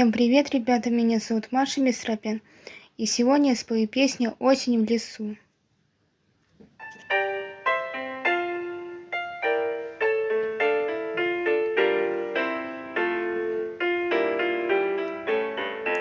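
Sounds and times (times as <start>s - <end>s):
piano melody: 6.8s - 16.0s.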